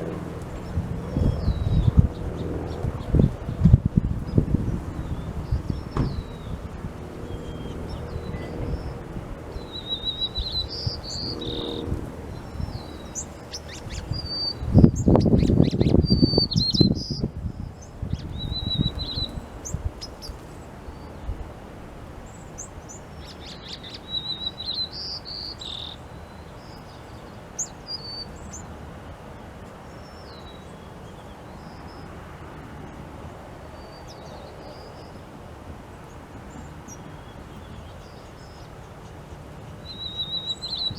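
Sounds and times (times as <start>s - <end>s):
small birds chirping: 0.0s - 32.2s, 36.0s - 40.9s
sharp knocks: 5.9s - 6.2s.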